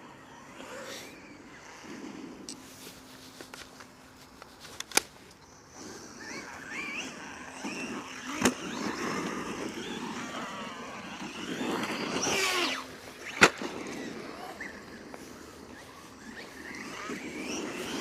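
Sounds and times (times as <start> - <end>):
toy truck electric motor whining: 0.0 - 3.1, 5.5 - 18.0
tyres rolling on loose ground: 6.3 - 18.0.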